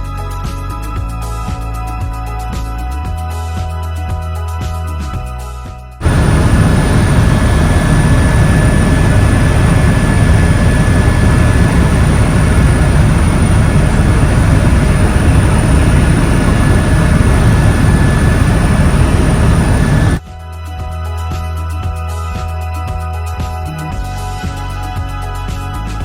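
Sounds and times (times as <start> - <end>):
helicopter rumble: 6.0 - 20.2
thin steady whine: 6.0 - 20.2.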